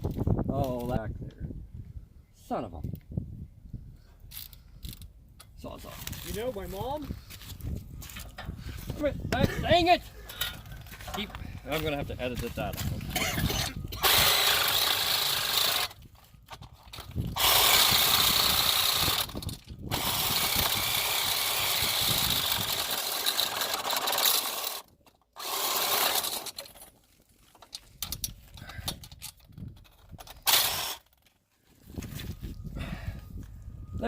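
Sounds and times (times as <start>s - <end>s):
reciprocating saw cutting metal: 14.0s - 16.0s, 17.4s - 24.8s, 25.4s - 26.6s, 30.5s - 31.1s.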